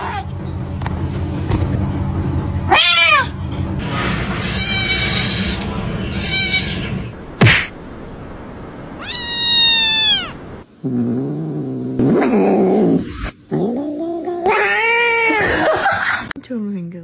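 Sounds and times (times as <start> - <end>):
cats meowing and yowling: 2.7 - 7.1, 9.0 - 10.4, 14.4 - 16.0
sharp knock: 7.4 - 7.7.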